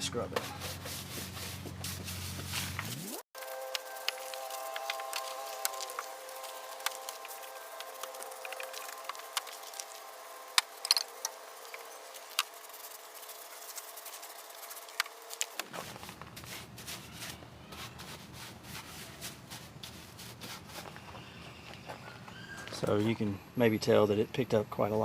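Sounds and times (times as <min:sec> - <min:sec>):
wheel brush scrubbing: 0:00.1 - 0:21.3.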